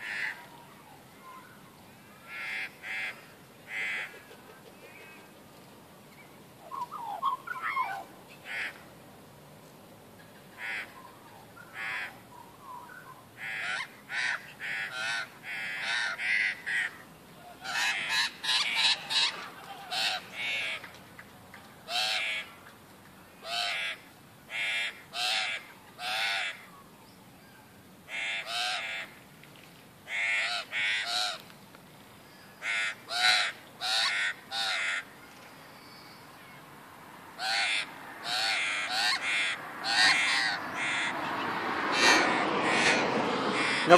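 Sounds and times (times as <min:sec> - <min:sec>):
birds calling: 0:00.0 - 0:05.4, 0:06.0 - 0:08.9, 0:10.2 - 0:29.2, 0:30.1 - 0:31.5, 0:32.1 - 0:43.9
faint bird chirps: 0:00.4 - 0:02.3, 0:35.2 - 0:36.7.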